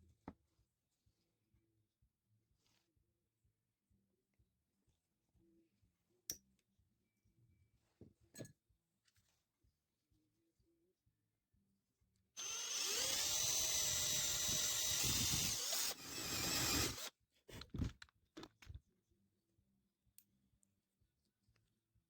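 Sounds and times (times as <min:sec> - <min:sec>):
power drill whining: 0:12.4 - 0:17.1.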